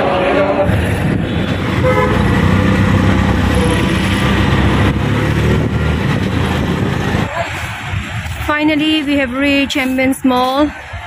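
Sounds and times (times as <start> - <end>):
auto-rickshaw engine droning: 0.0 - 8.5.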